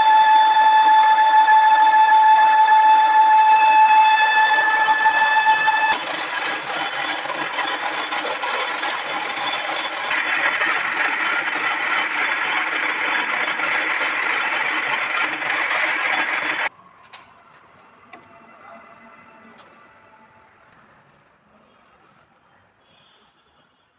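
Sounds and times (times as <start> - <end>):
steady pitched tone: 0.0 - 6.0
metal lathe cutting: 0.0 - 16.7.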